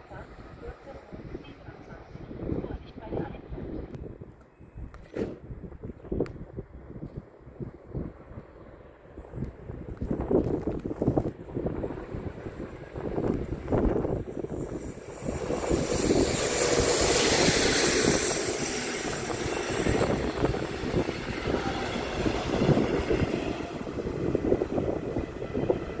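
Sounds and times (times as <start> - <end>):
train passing on track: 0.0 - 4.2, 5.7 - 26.0
train wheels rolling and clattering: 9.9 - 26.0.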